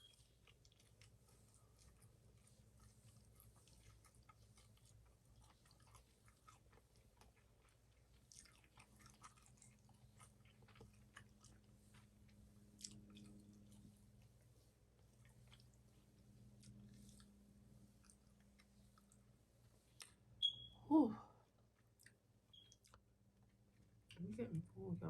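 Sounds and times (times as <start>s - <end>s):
person chewing food: 0.0s - 20.3s, 21.5s - 24.2s
mouth clicks and smacks: 21.9s - 23.1s.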